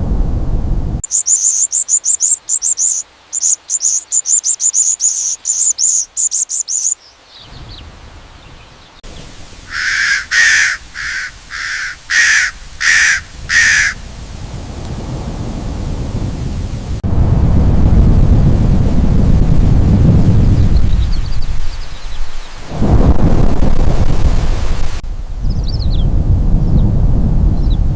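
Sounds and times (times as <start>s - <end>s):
high-pitched bird chirping: 1.0s - 7.0s, 9.7s - 14.0s
crow cawing: 9.6s - 14.1s.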